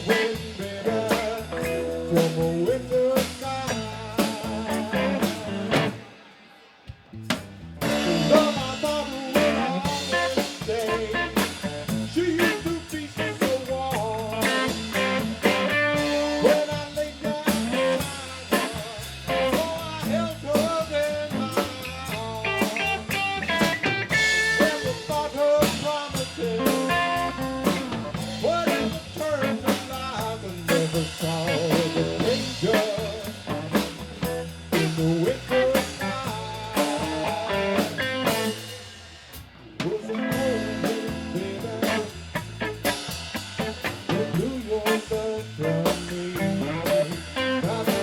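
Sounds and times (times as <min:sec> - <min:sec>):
blues-rock band playing: 0:00.0 - 0:06.4, 0:07.1 - 0:48.0.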